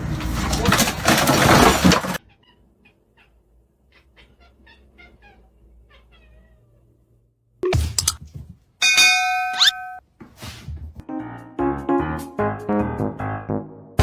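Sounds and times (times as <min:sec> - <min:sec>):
cat meowing: 0:02.2 - 0:07.0.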